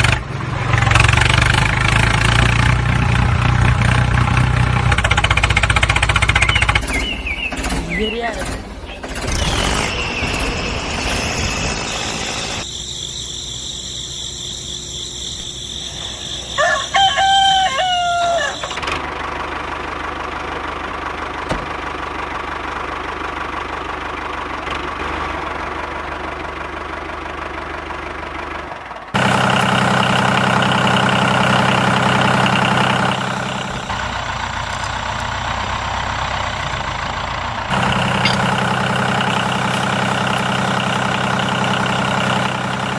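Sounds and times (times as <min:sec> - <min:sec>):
rooster crowing: 0:15.7 - 0:18.8.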